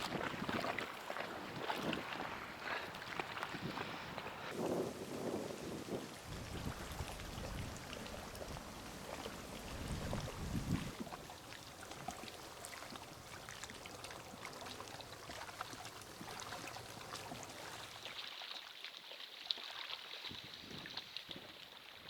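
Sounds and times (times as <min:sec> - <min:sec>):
small water splashes: 0:00.0 - 0:22.0
small waves lapping: 0:00.0 - 0:22.0
wind buffeting microphone: 0:03.2 - 0:11.2.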